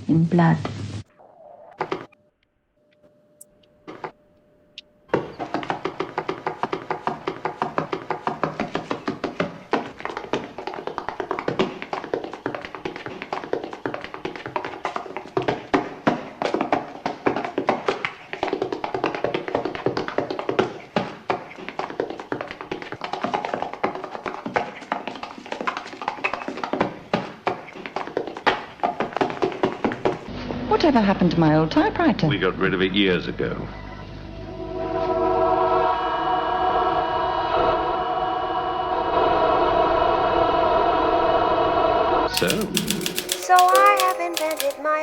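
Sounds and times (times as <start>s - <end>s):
faint steady tones: 2.1s - 5.3s
rapid tapping clicks: 42.3s - 45.0s.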